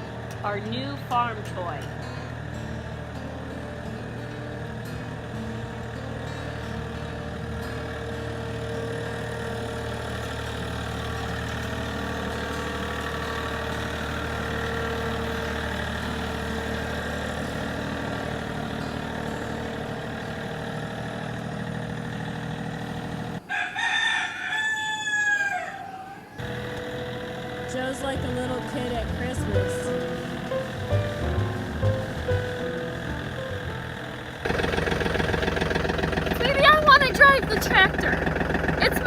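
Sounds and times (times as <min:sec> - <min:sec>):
engine running: 0:00.0 - 0:23.5, 0:26.3 - 0:39.0
rooster crowing: 0:23.4 - 0:26.4.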